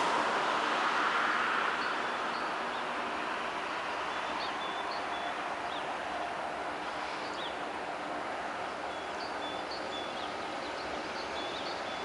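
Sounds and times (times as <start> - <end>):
small birds chirping: 7.0 - 7.6, 8.7 - 12.0.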